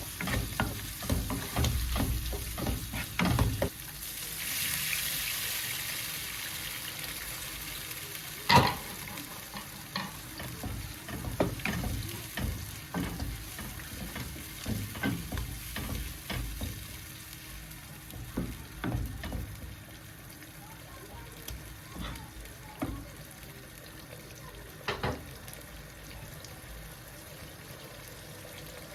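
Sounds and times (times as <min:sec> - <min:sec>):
food sizzling in a frying pan: 0:00.0 - 0:28.9
utensil knocking against pan: 0:00.1 - 0:03.7, 0:08.5 - 0:16.9, 0:18.1 - 0:19.8.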